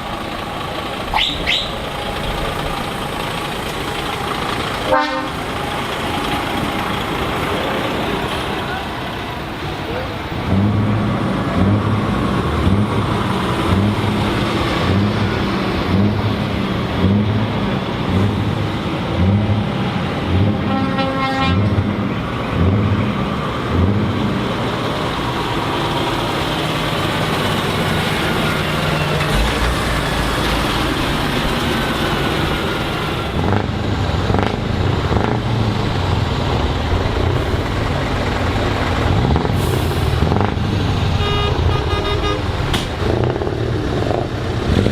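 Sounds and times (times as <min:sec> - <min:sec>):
heavy truck engines running: 0:00.0 - 0:44.9
horn toot: 0:04.9 - 0:05.4, 0:20.6 - 0:21.8, 0:41.2 - 0:42.5.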